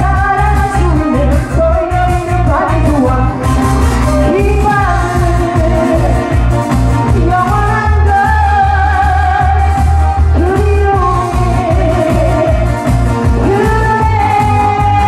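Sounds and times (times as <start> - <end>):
amplified singing: 0.0 - 15.0
heavy bass beat: 0.0 - 15.0.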